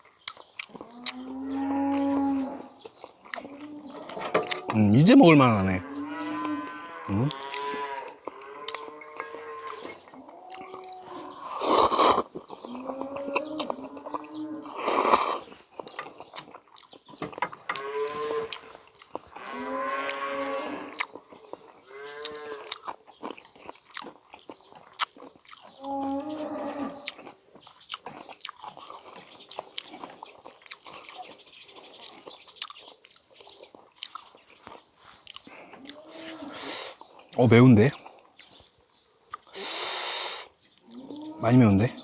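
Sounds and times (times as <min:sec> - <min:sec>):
cow mooing: 0:00.9 - 0:02.8, 0:03.4 - 0:11.4, 0:12.7 - 0:14.8, 0:17.7 - 0:18.6, 0:19.4 - 0:21.0, 0:25.8 - 0:27.2, 0:40.9 - 0:42.0
person eating noodles: 0:10.5 - 0:17.0, 0:39.3 - 0:40.5
loud slurp: 0:11.5 - 0:12.4.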